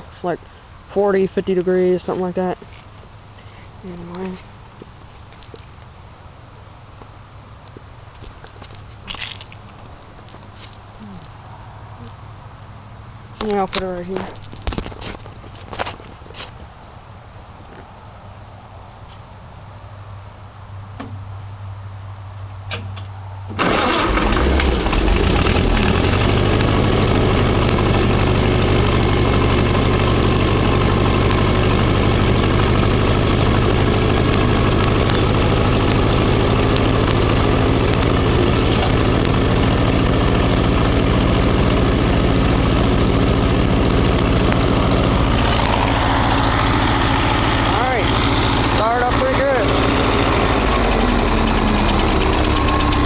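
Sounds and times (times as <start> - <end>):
engine cold start: 23.5 - 26.6.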